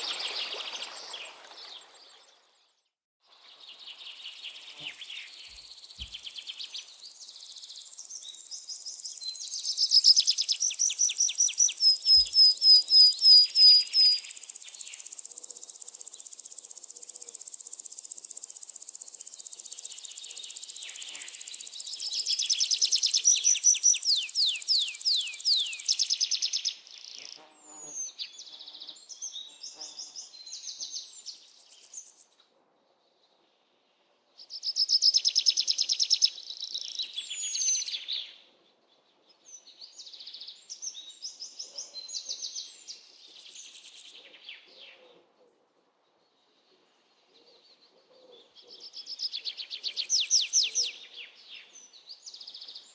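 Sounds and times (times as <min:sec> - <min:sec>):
songbirds trilling and chirping: 0:03.3 - 0:32.4, 0:46.2 - 0:52.9.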